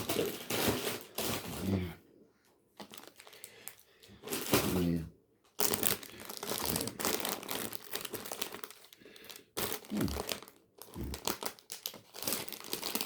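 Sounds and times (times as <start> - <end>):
plastic wrappers crinkling: 0.0 - 1.9, 2.7 - 13.0.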